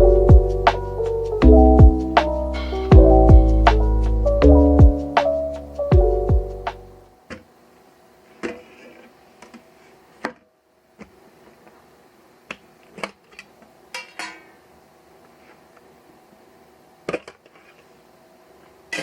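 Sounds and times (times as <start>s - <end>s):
background music: 0.0s - 7.0s.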